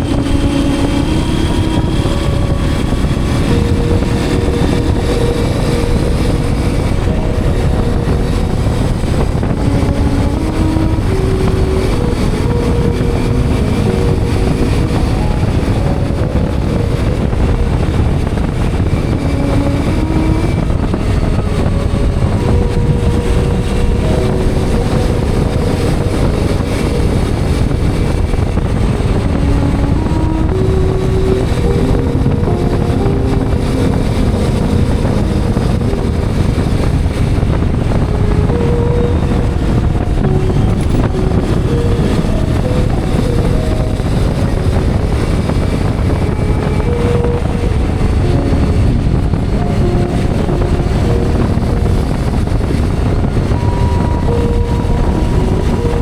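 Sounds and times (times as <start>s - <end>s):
low ride noise: 0.0s - 56.0s.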